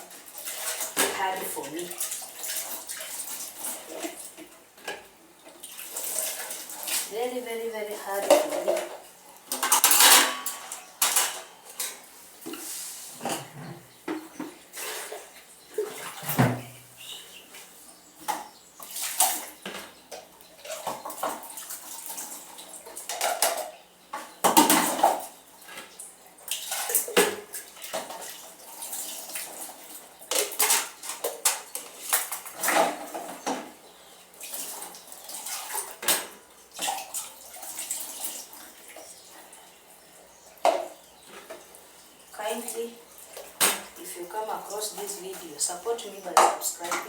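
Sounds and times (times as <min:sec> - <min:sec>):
water sloshing and splashing: 0:00.0 - 0:17.0, 0:17.6 - 0:23.7, 0:24.4 - 0:47.0
dishes clinking and clattering: 0:08.2 - 0:16.7, 0:18.2 - 0:22.3, 0:23.0 - 0:25.9, 0:30.3 - 0:33.8.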